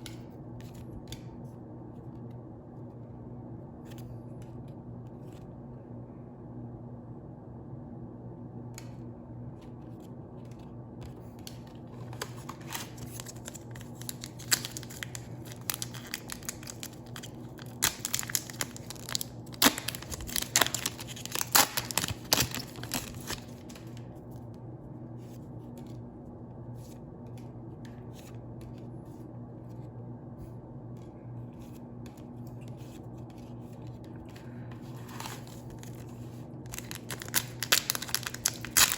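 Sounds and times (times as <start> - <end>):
steady low hum: 0.0 - 38.9
foil wrapper tearing and crinkling: 12.1 - 23.8, 35.0 - 38.9.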